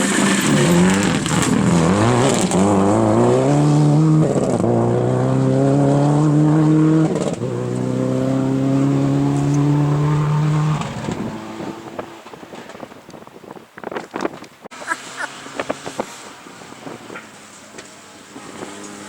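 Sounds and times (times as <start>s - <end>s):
rally car engine accelerating: 0.0s - 12.8s, 14.8s - 19.0s.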